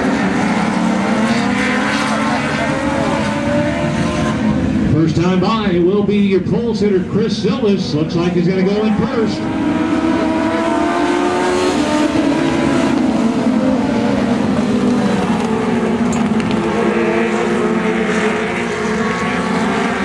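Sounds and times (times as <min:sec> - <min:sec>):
race car engines revving: 0:00.0 - 0:20.0.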